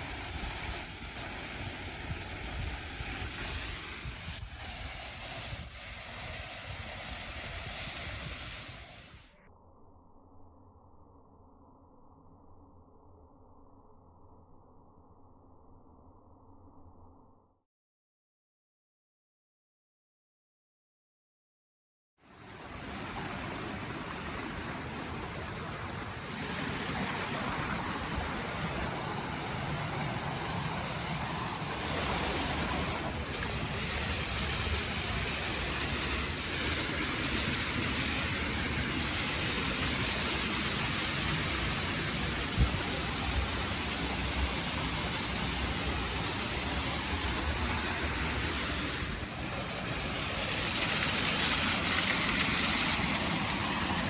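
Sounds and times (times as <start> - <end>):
waterfall rushing: 22.4 - 54.0.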